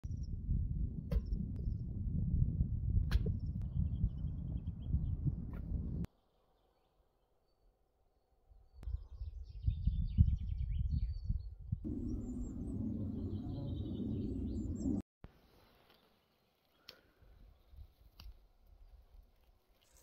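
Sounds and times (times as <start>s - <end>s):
uneven low rumbling: 11.8s - 15.0s.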